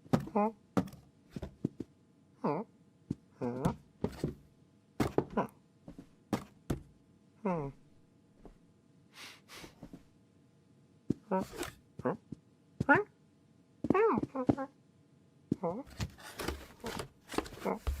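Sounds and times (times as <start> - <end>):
sharp knocks and thunks: 5.0 - 6.9
soft breathy puffs: 9.1 - 10.1.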